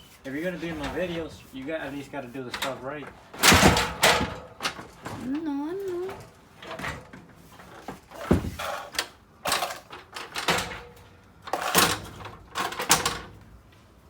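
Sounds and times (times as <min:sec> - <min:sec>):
objects knocking and clattering: 0:03.3 - 0:05.3, 0:06.1 - 0:10.9.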